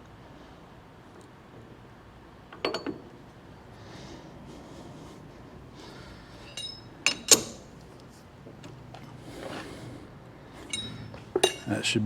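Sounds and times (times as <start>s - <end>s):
metallic clink: 6.2s - 7.8s, 10.6s - 11.9s.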